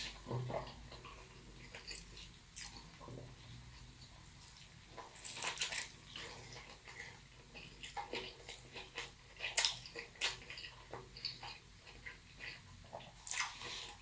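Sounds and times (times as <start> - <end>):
wet chewing and mouth smacks: 4.4 - 14.0.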